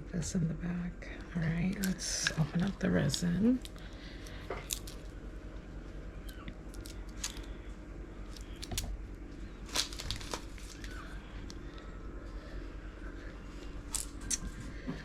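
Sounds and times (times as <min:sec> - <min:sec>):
plastic packaging crinkling: 0:01.7 - 0:05.2, 0:06.2 - 0:07.6, 0:08.2 - 0:11.6.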